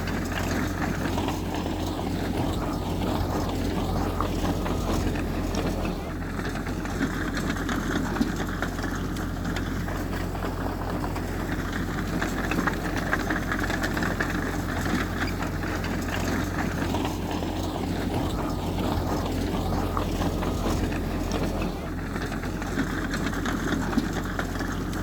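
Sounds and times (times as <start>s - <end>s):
diesel engine rumbling: 0.0s - 25.0s.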